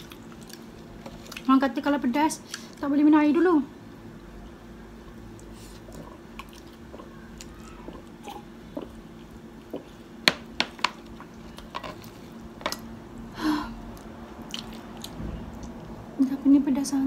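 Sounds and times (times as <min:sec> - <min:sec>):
wet chewing mouth noises: 0:05.1 - 0:10.0, 0:13.9 - 0:15.9.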